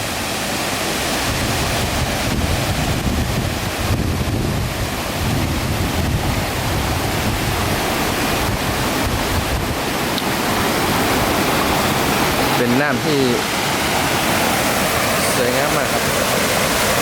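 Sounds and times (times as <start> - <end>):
waterfall rushing: 0.0 - 17.0
wind buffeting microphone: 1.1 - 12.6.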